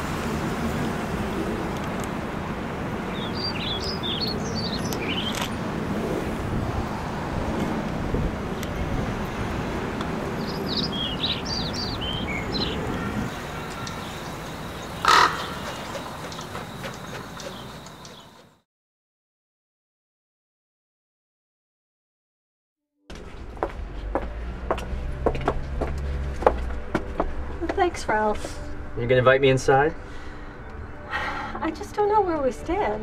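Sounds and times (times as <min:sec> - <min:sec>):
low rumble of city traffic: 0:00.0 - 0:18.6, 0:23.1 - 0:33.0
short high bird calls: 0:10.5 - 0:18.4.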